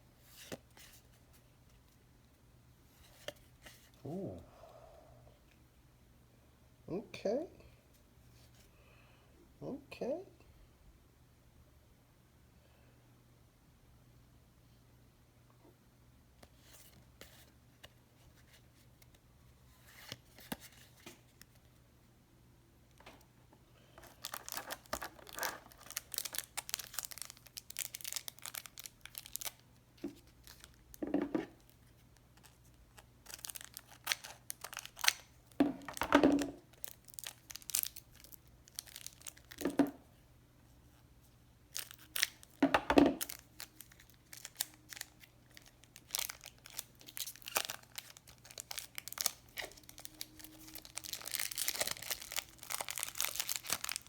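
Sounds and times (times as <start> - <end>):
wrapper crinkling and tearing: 24.0 - 30.8, 32.4 - 39.9, 41.7 - 42.6, 43.2 - 54.0.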